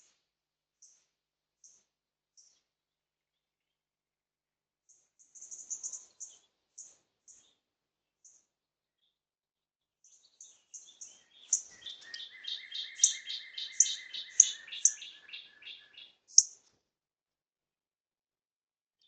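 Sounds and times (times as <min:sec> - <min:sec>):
small birds chirping: 0:00.8 - 0:02.7, 0:04.9 - 0:09.2, 0:10.0 - 0:16.7.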